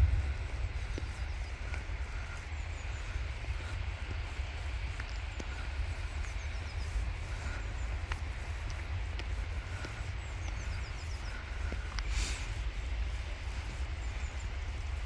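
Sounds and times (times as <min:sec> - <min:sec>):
low rumble: 0:00.0 - 0:00.5.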